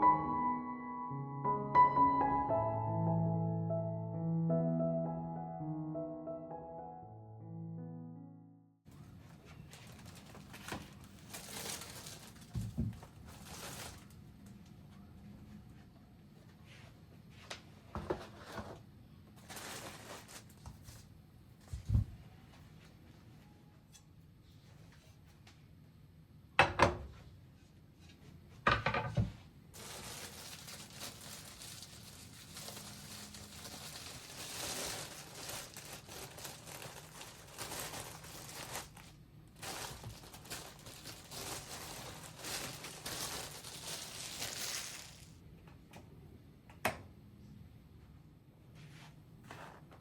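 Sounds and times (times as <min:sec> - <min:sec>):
crinkling and rustling: 0:08.9 - 0:14.8, 0:18.0 - 0:22.3, 0:29.8 - 0:45.4.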